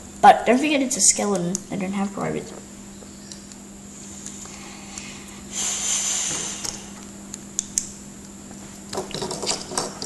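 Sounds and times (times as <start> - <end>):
electrical hum: 0.0 - 10.0
breathy hiss: 3.9 - 7.0.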